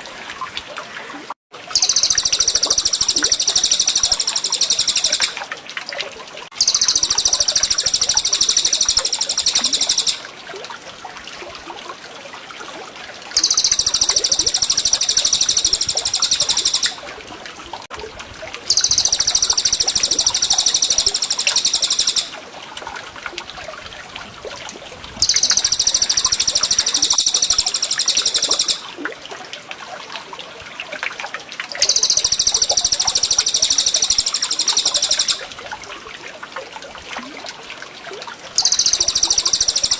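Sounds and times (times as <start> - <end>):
water trickling: 0.0 - 39.9
high-pitched trilling birdsong: 1.8 - 5.4, 6.6 - 10.2, 13.4 - 17.0, 18.7 - 22.4, 25.2 - 28.9, 31.8 - 35.4, 38.6 - 39.9.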